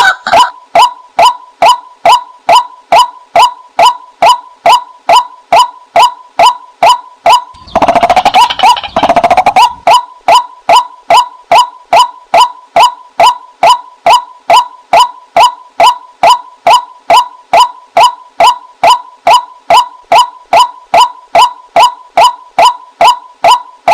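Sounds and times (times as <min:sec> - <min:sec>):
rapid rattling churr: 0:07.6 - 0:09.9
waterhen kwak calls: 0:07.6 - 0:10.4.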